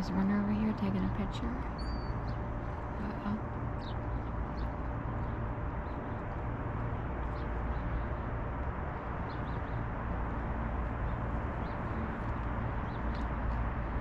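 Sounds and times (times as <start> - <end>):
low background rumble: 0.0 - 14.0
faint high bird chirps: 1.3 - 2.4.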